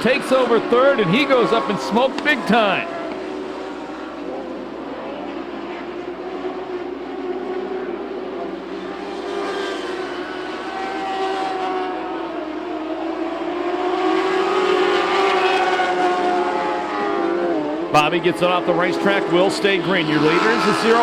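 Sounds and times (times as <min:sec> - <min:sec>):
racing car engines at high revs: 0:00.0 - 0:21.0.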